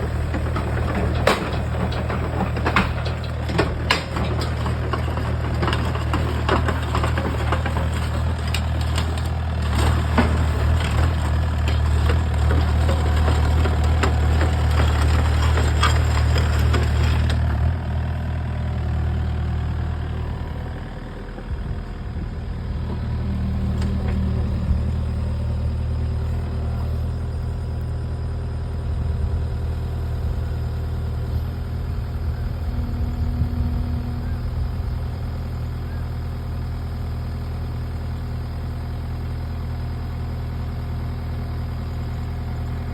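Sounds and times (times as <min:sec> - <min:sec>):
rattling and clatter: 0:00.0 - 0:17.7
diesel engine running: 0:00.0 - 0:42.9.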